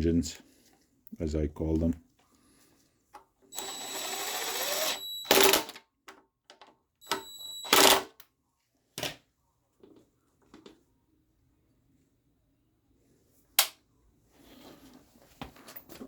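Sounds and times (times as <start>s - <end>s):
power tool whining: 3.5s - 5.8s, 7.0s - 8.0s.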